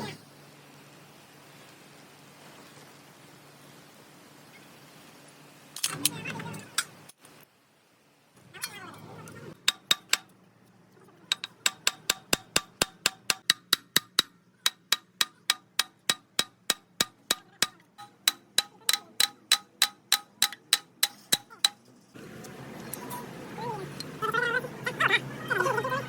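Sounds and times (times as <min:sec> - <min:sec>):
hammer striking metal: 0:09.6 - 0:10.3, 0:11.3 - 0:21.9.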